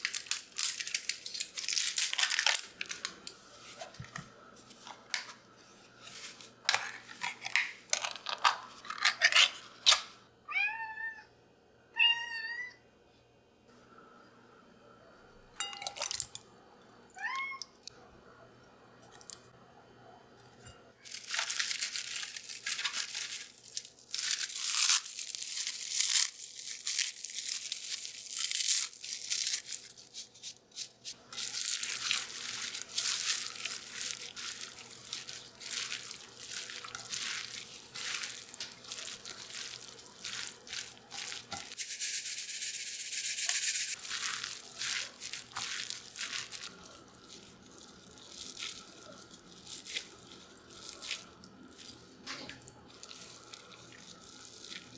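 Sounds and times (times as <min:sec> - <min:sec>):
small brush scrubbing: 0:29.6 - 0:52.1.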